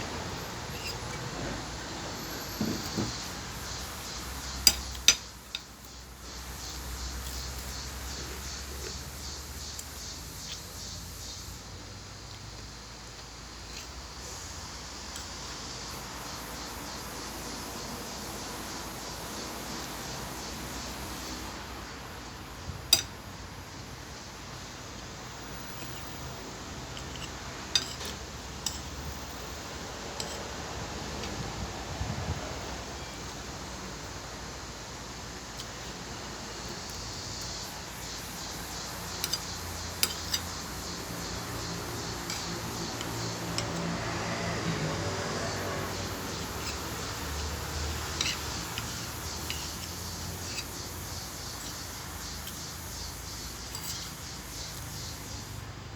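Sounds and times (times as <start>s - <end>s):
background noise: 0.0s - 55.9s
steady background hiss: 0.0s - 55.9s
cutlery clinking on a plate: 2.6s - 3.2s, 27.0s - 28.9s, 39.2s - 40.5s, 53.7s - 54.0s.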